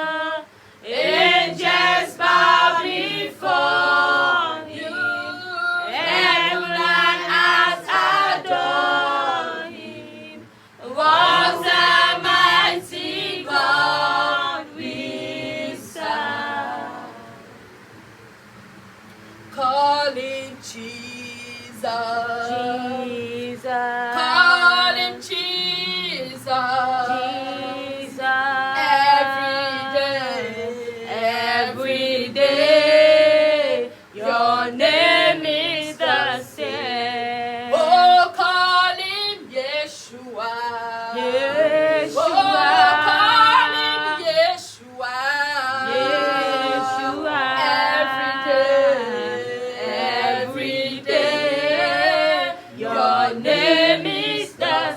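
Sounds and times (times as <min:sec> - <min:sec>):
voices singing a worship song: 0:00.0 - 0:54.9.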